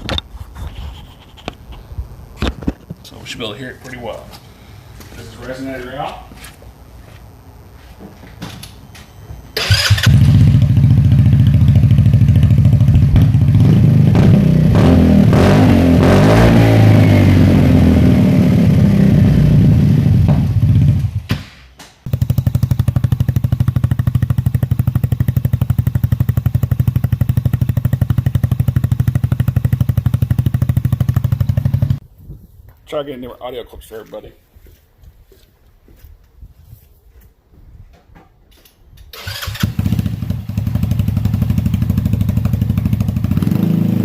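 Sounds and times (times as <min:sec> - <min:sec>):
small engine running loud: 0:09.6 - 0:20.8.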